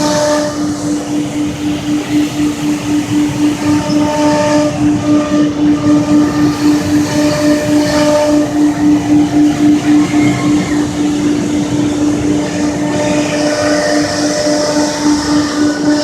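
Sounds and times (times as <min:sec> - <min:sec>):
cnc router cutting: 0:00.0 - 0:16.0.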